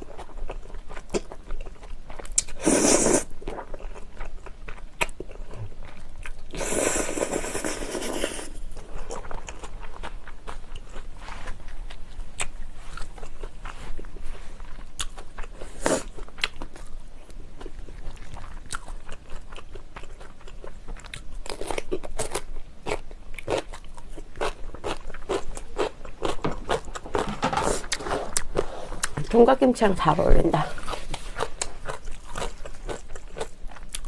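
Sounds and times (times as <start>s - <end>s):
chewing noodles: 0.0s - 29.3s, 30.7s - 34.0s
crunchy bites and chewing: 8.8s - 29.3s, 30.8s - 34.0s.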